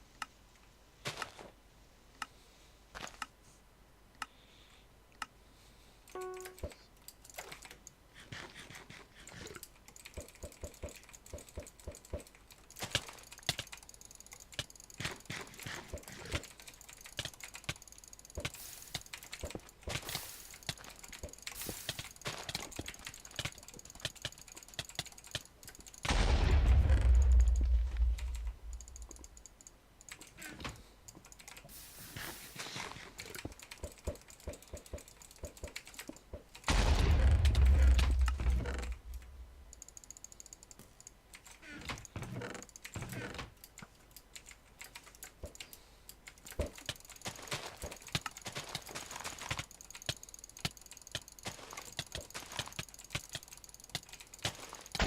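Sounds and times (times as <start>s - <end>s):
rapid clicking and tapping: 7.3s - 26.1s, 33.0s - 36.7s, 38.2s - 55.0s.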